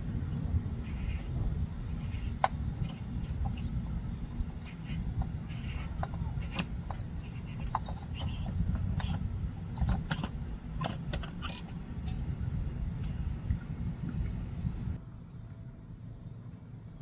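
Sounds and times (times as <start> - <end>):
low rumble: 0.0 - 17.0
hand tools clinking and scraping: 4.5 - 12.2.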